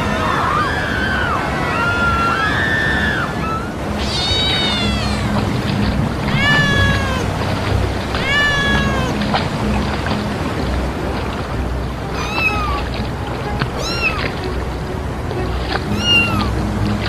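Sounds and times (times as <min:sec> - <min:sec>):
cat meowing: 0:03.4 - 0:05.3, 0:06.3 - 0:07.3, 0:08.2 - 0:09.2, 0:12.1 - 0:12.8, 0:13.8 - 0:14.3, 0:15.9 - 0:16.5.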